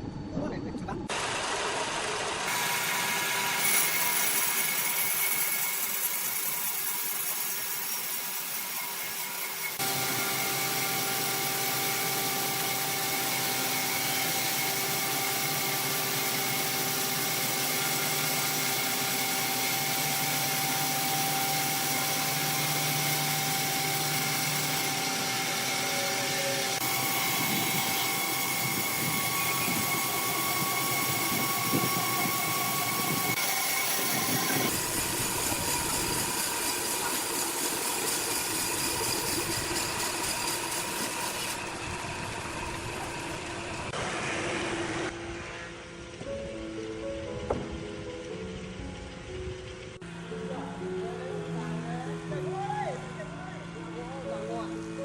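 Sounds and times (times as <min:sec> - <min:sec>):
heavy machinery droning: 0:01.0 - 0:04.4, 0:09.7 - 0:55.0.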